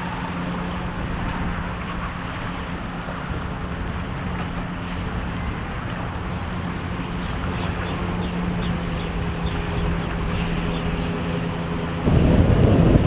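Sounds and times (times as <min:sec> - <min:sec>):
outboard motor droning: 0:00.0 - 0:13.0
wind on microphone: 0:11.9 - 0:13.0.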